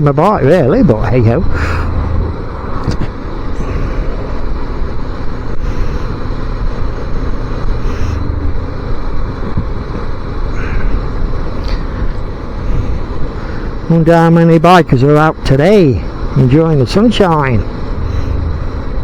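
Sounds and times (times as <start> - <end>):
motorcycle engine running: 0.7 - 13.9
wind noise on microphone: 1.5 - 13.4.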